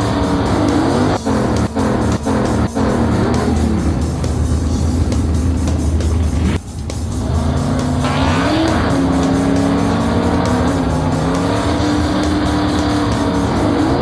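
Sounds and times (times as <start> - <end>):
background music: 0.0 - 14.0
cartoon engine sound effect: 7.4 - 12.0.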